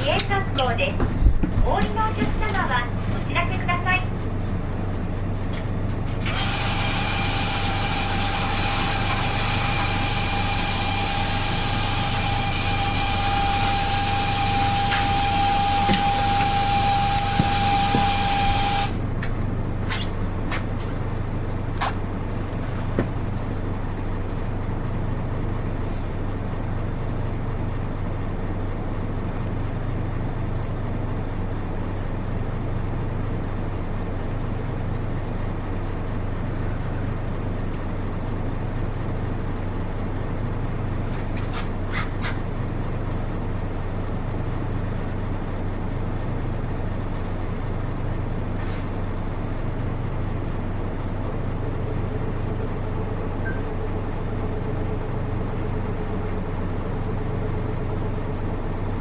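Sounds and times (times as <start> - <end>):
bus diesel engine droning: 0.0 - 59.0
steady whine: 10.0 - 24.4, 50.9 - 59.0.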